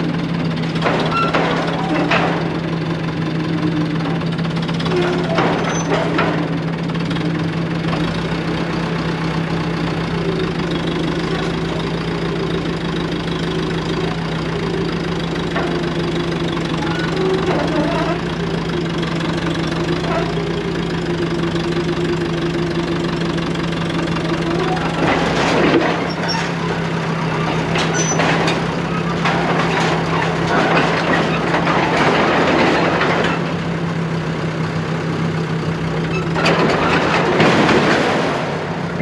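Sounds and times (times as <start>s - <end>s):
bulldozer diesel engine running: 0.0s - 39.0s
loud clatter: 0.3s - 33.8s, 36.1s - 39.0s
metal clanks: 0.7s - 2.8s, 4.0s - 6.6s, 24.3s - 33.7s.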